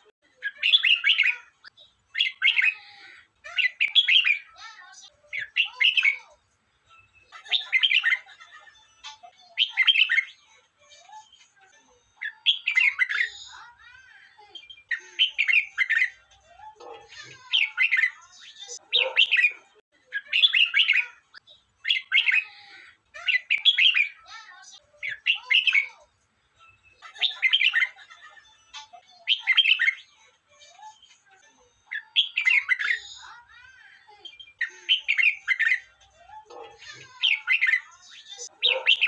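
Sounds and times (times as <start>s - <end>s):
bird warbling: 16.8s - 21.2s, 36.5s - 39.0s.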